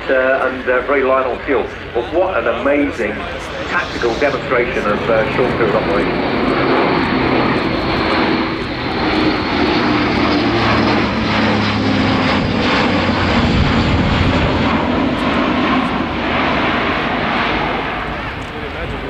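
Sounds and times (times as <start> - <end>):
turboprop engines droning: 0.0 - 19.0.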